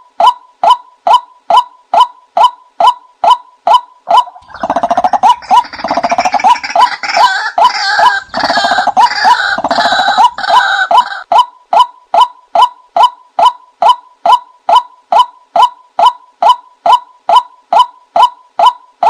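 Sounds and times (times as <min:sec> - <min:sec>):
watercock bird calls: 0:03.2 - 0:11.2.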